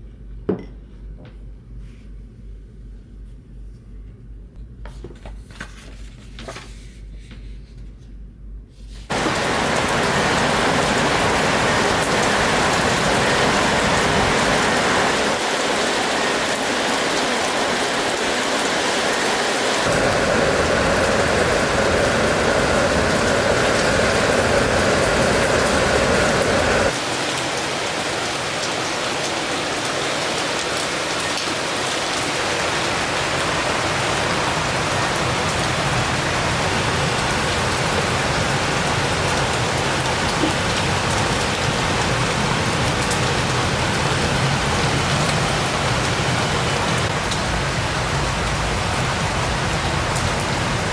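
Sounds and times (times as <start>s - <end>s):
steady rain falling: 9.1s - 50.9s.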